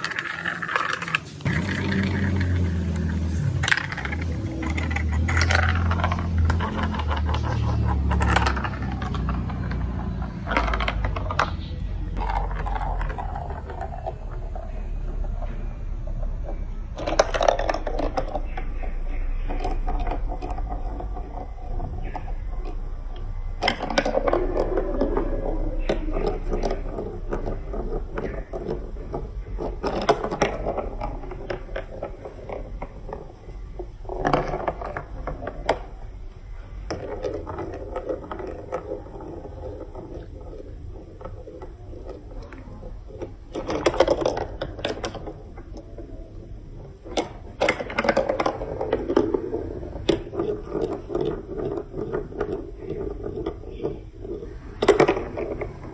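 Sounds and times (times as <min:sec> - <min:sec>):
marbles clattering on plastic track: 0:00.0 - 0:55.9.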